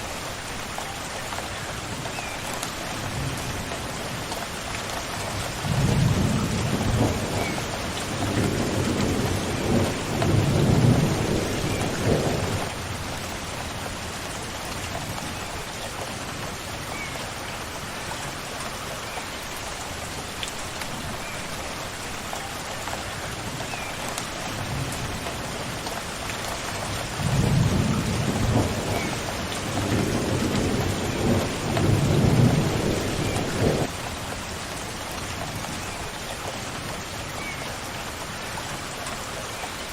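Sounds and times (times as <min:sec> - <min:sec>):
steady rain falling: 0:00.0 - 0:39.9
thunder rolling: 0:29.8 - 0:33.9.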